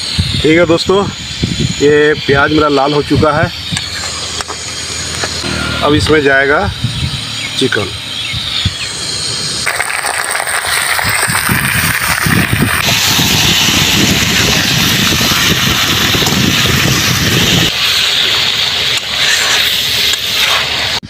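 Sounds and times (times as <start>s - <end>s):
chicken sizzling in hot oil: 7.0s - 21.0s.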